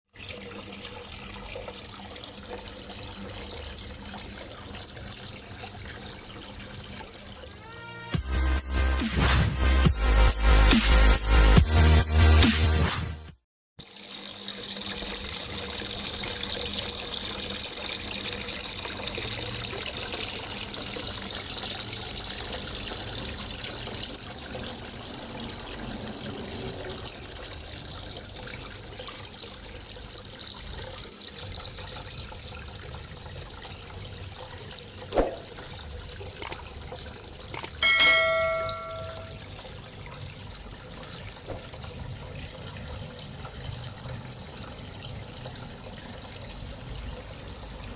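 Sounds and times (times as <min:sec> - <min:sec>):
water running and trickling: 0:00.1 - 0:07.6, 0:13.8 - 0:47.9
sharp click: 0:36.4 - 0:36.6, 0:37.6 - 0:37.8
bell-like chime: 0:37.8 - 0:39.4.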